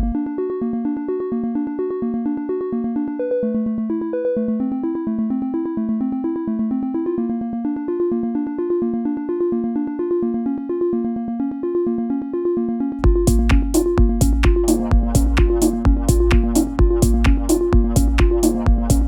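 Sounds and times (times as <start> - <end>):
kick drum: 0.0 - 0.2, 13.0 - 19.0
synthesizer sequenced pattern: 0.0 - 19.0
hi-hats: 13.0 - 19.0.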